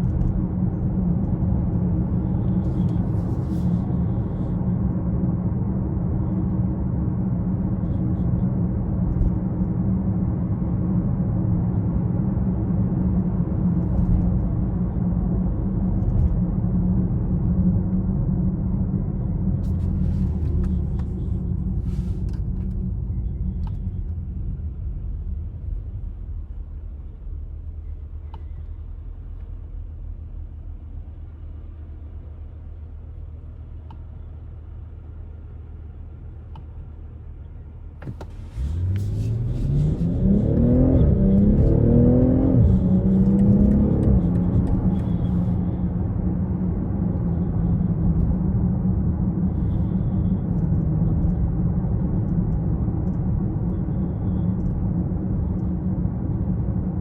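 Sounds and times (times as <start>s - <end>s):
car engine accelerating: 37.9s - 57.0s.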